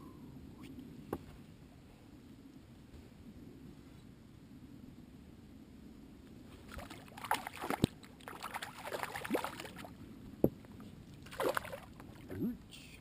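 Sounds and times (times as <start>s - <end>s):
water splashing and sloshing: 6.5s - 12.4s.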